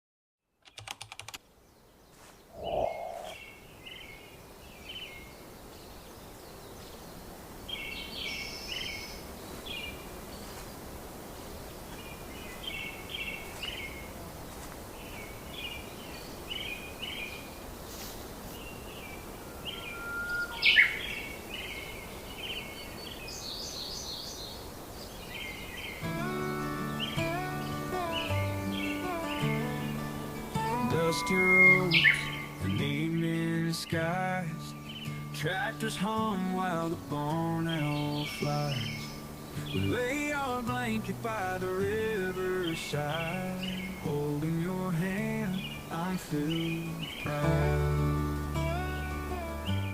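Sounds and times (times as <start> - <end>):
outdoor background hiss: 0.4 - 49.9
songbirds chirping: 0.5 - 49.9
loud rising bird call: 2.5 - 3.6, 18.4 - 22.8, 25.4 - 32.6.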